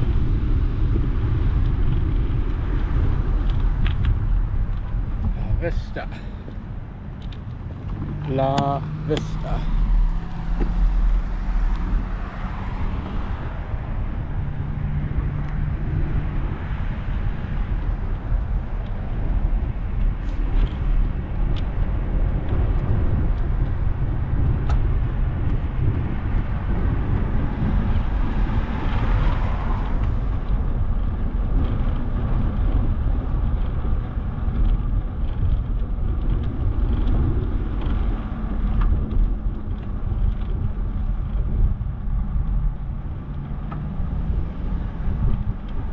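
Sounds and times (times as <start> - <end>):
car passing: 0.0 - 22.3, 22.9 - 33.0
steady low street rumble: 0.0 - 45.9.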